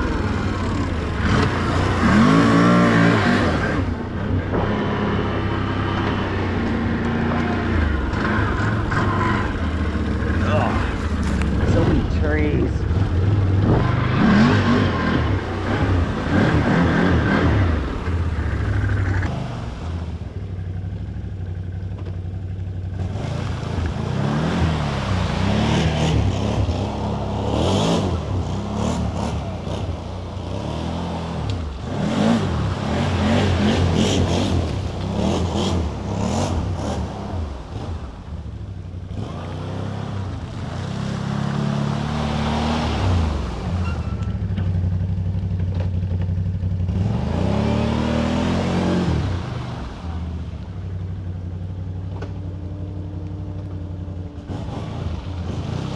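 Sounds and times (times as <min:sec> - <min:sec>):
off-road vehicle engine revving: 0:00.0 - 0:55.9
clatter: 0:21.2 - 0:24.0, 0:43.8 - 0:47.0
splashing water: 0:22.9 - 0:47.0.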